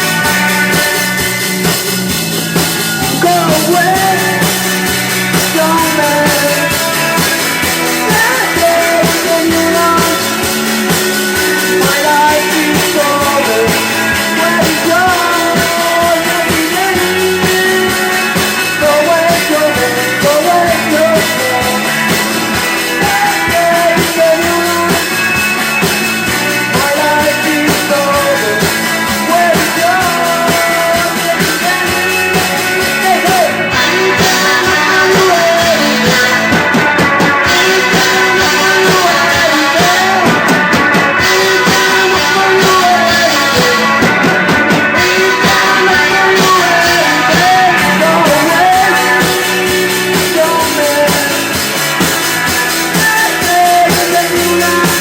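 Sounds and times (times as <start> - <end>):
drum kit: 0.0 - 55.0
electric guitars: 0.0 - 55.0
person singing: 0.0 - 55.0.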